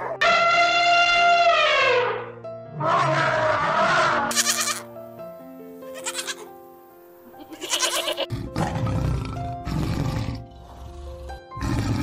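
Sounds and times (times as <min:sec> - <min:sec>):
background music: 0:00.0 - 0:12.0
goat bleating: 0:04.3 - 0:04.9, 0:05.9 - 0:06.5, 0:07.4 - 0:08.3.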